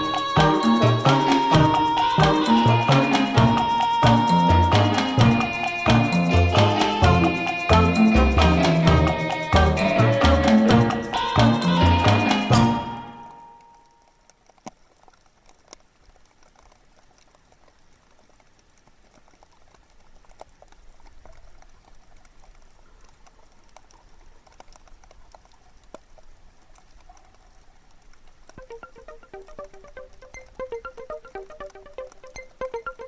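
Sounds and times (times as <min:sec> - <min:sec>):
faint clicks and crackles: 0:13.6 - 0:33.0.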